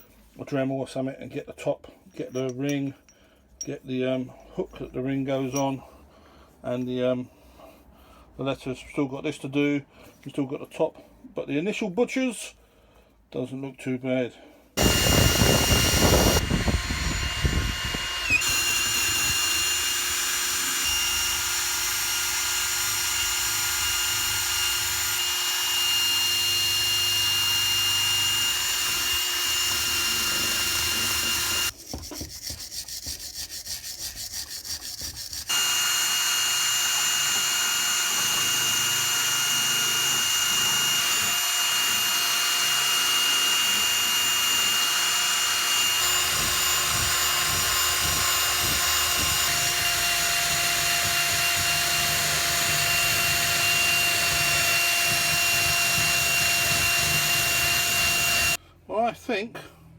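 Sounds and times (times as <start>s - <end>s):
wire brush power tool whining: 14.8s - 31.8s, 33.8s - 58.6s.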